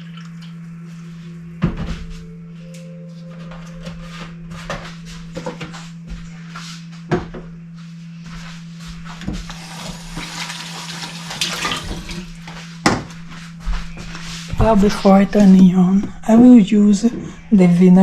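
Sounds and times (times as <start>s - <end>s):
steady low hum: 0.0s - 18.0s
water running and splashing: 9.5s - 12.4s.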